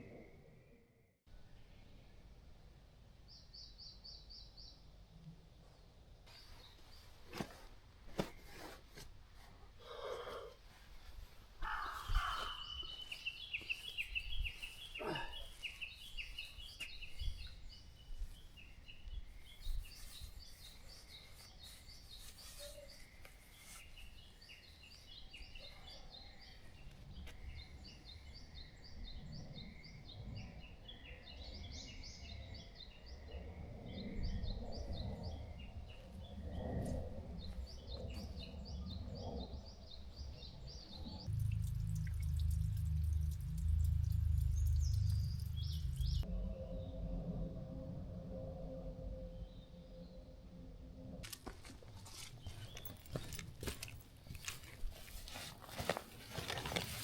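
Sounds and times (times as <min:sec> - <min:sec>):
birds chirping and singing: 0:11.6 - 0:26.6, 0:43.1 - 0:46.9.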